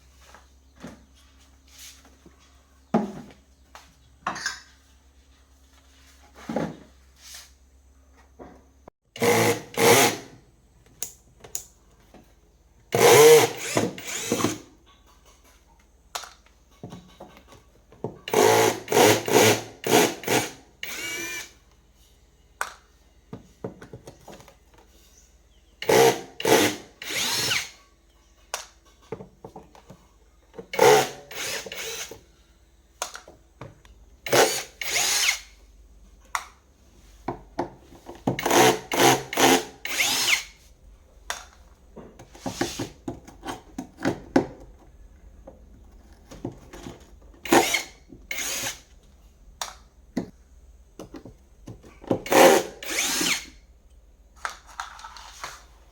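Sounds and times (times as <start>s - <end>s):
power drill running in bursts: 13.0s - 14.6s, 18.3s - 21.5s, 25.8s - 27.7s, 30.8s - 32.1s, 34.3s - 35.4s, 38.4s - 40.5s, 47.4s - 48.8s, 52.3s - 53.5s.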